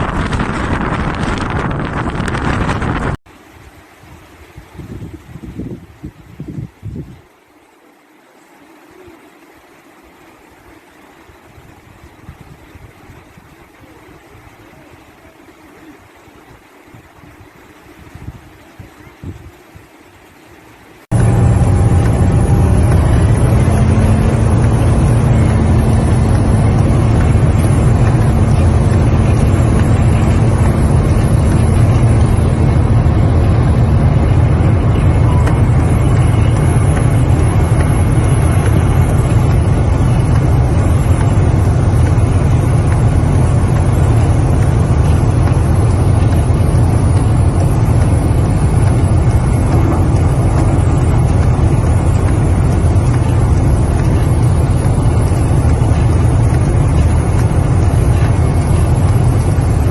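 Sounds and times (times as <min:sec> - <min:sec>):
vehicle engine rumble: 0:00.0 - 0:03.2, 0:21.1 - 0:59.9.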